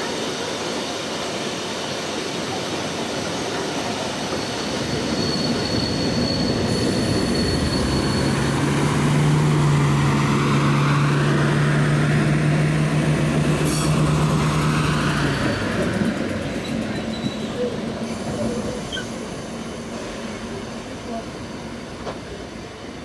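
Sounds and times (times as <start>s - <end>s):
diesel train engine drone: 0.0s - 23.0s
train running over rails: 0.0s - 23.0s
high wheel squeal: 4.0s - 9.0s, 16.6s - 19.4s.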